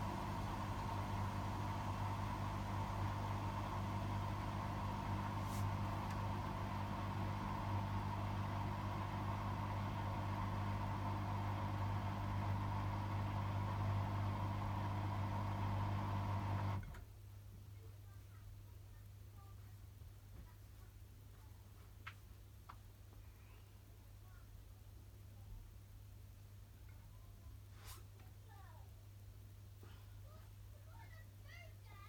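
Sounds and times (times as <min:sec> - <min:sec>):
washing machine spinning: 0:00.0 - 0:16.9.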